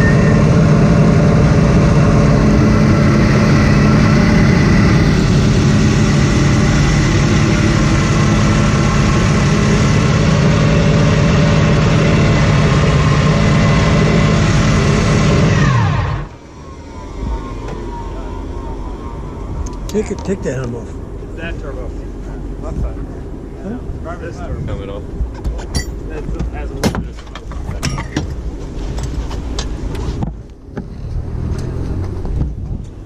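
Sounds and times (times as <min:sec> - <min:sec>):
racing car engine winding down: 0:00.0 - 0:24.0, 0:30.8 - 0:32.6.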